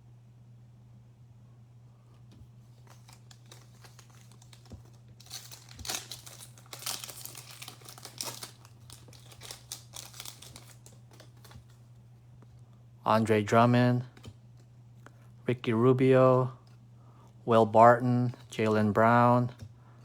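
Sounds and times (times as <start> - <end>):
low electrical hum: 0.0 - 20.0
wrapper tearing and crinkling: 2.8 - 11.8.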